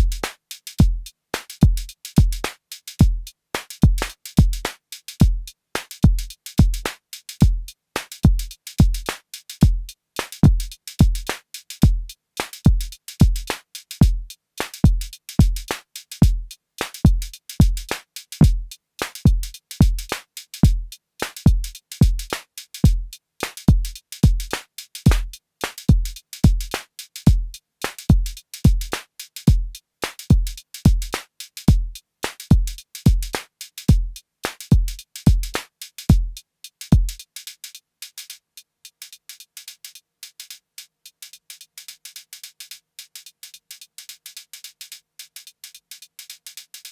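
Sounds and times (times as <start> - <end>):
drum machine deep kick: 8.3 - 12.1, 17.1 - 18.7, 19.3 - 20.9, 21.5 - 22.3, 25.1 - 25.3.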